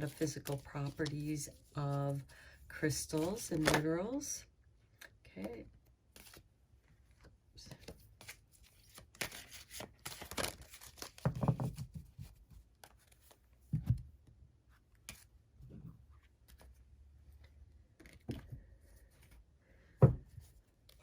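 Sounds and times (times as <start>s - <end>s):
cards sliding and scraping: 7.8s - 11.3s
soft thumps: 20.0s - 20.4s.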